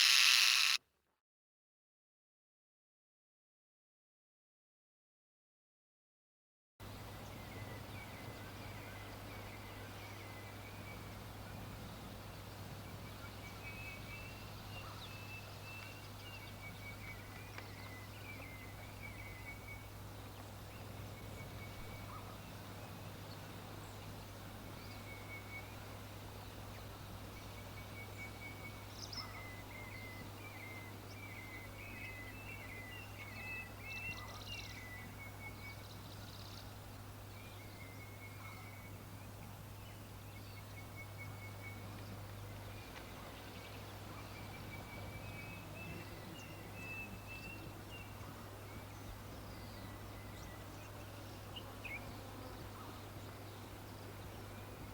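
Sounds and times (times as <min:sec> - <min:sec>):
small birds chirping: 0:00.0 - 0:00.8
steady low hum and hiss: 0:06.8 - 0:54.9.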